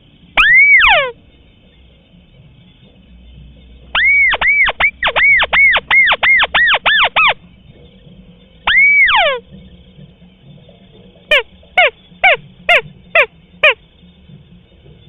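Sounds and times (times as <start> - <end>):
crake calling: 0.4 - 1.2, 3.9 - 7.4, 8.6 - 9.5, 11.3 - 13.8.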